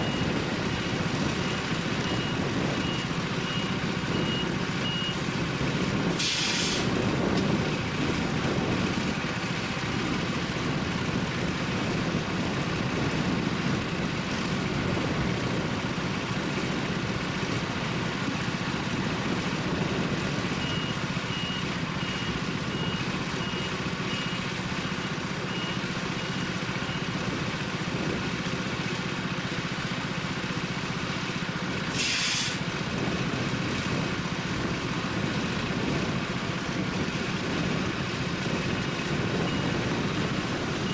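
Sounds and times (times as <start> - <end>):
reversing beeper beeps: 0.0 - 5.2, 20.6 - 27.1, 39.4 - 39.8
diesel truck engine running: 0.0 - 40.9
air release hisses: 32.0 - 32.6.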